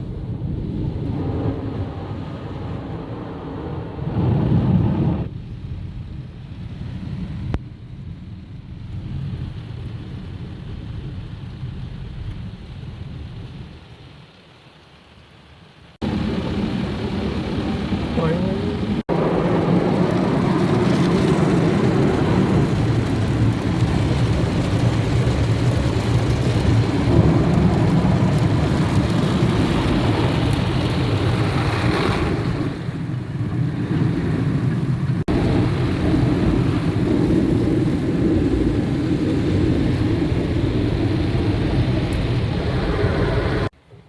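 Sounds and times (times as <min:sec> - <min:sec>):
car wash brushes and water spray: 0:16.1 - 0:43.8.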